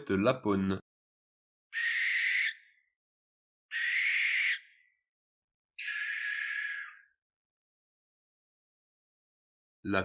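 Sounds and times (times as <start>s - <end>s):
owl screeching: 1.7s - 2.9s, 3.7s - 5.0s, 5.8s - 7.2s.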